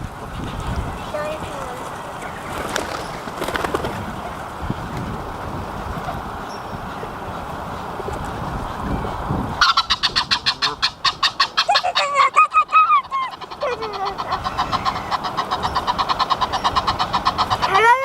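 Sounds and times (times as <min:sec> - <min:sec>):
geese honking: 0:09.6 - 0:18.0.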